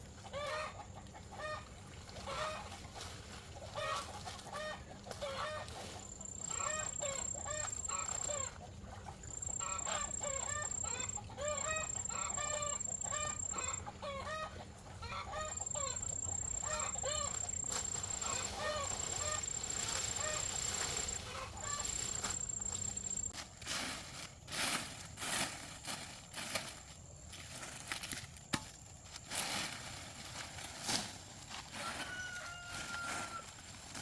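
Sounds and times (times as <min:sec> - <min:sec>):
chickens clucking: 0:00.0 - 0:23.4, 0:31.5 - 0:34.0.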